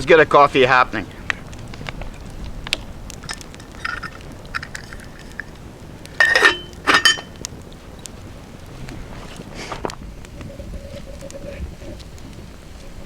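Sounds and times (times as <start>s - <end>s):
ringing metal clanks: 3.2s - 5.5s, 6.1s - 7.4s
cookware small clicks and knocks: 3.3s - 5.5s, 6.2s - 7.4s.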